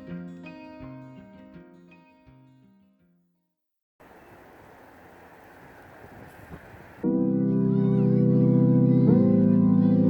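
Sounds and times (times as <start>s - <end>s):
faint rushing outdoor ambience: 4.0s - 7.0s.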